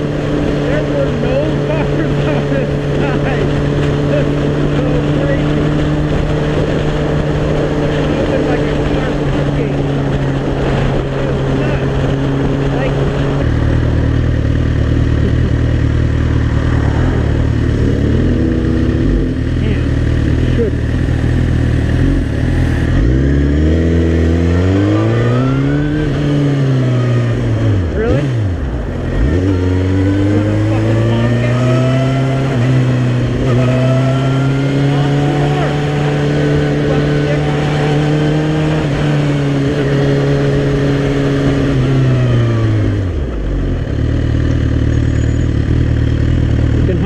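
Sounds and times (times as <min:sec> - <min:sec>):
wind noise: 0:00.0 - 0:19.9
motorcycle engine accelerating: 0:00.0 - 0:47.0.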